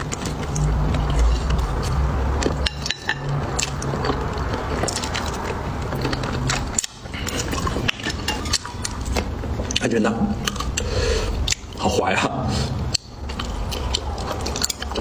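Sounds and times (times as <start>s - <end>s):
person chewing food: 0.0s - 9.8s, 10.4s - 11.8s, 12.7s - 15.0s.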